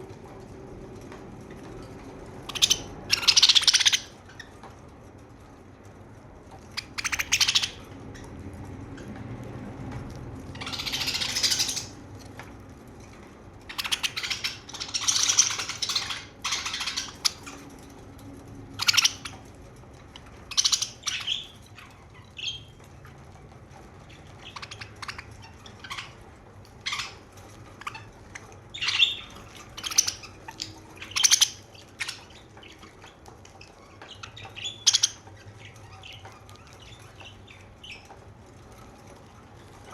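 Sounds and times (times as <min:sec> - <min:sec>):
budgerigars chirping and chattering: 0:02.4 - 0:04.6, 0:06.6 - 0:08.3, 0:10.5 - 0:12.0, 0:13.6 - 0:17.9, 0:18.7 - 0:22.9, 0:23.7 - 0:39.9.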